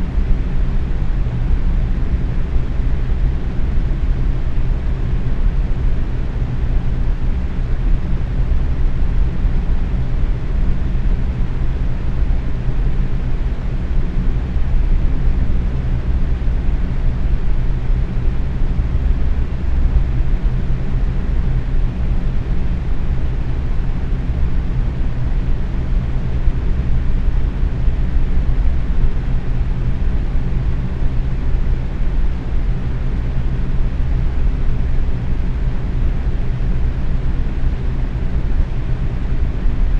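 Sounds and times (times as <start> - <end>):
box fan running: 0.0 - 39.9.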